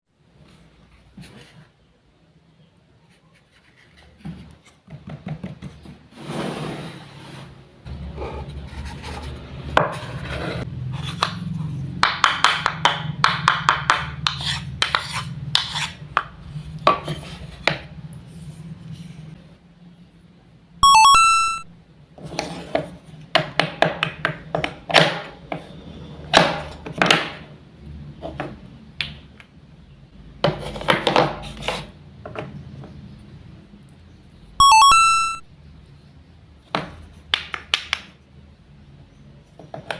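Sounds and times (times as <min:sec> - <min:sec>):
wooden knife tapping wooden toys: 0:12.0 - 0:16.3
high chime: 0:20.8 - 0:21.7, 0:34.6 - 0:35.4.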